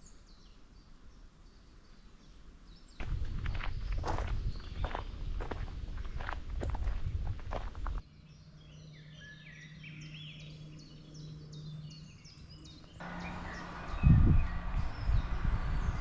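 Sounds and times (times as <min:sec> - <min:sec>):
small birds chirping and trilling: 0:00.0 - 0:16.0
footsteps on forest trail: 0:03.0 - 0:08.0, 0:13.0 - 0:14.7.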